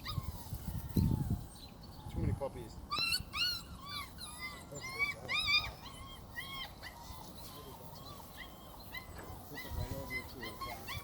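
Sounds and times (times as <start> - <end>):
puppies whining and yipping: 0.0 - 11.0.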